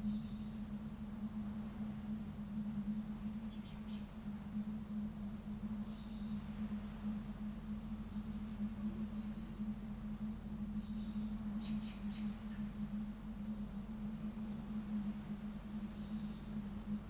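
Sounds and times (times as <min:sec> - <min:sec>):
constant low hum: 0:00.0 - 0:17.0
faint bird chirps: 0:00.0 - 0:17.0
soft low rumble: 0:00.0 - 0:17.0.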